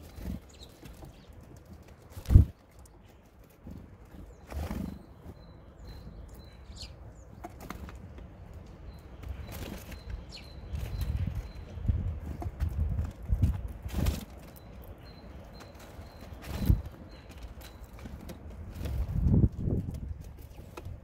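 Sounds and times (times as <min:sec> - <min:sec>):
birds scrabbling on wood: 0:00.0 - 0:21.0
wing flutters: 0:03.6 - 0:05.2
high bird chirps: 0:04.1 - 0:07.5, 0:08.8 - 0:12.1.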